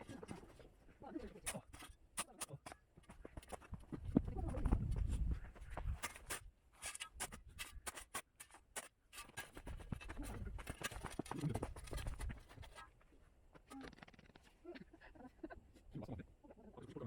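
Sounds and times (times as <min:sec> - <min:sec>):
shovel scraping in soil: 0:05.8 - 0:12.8.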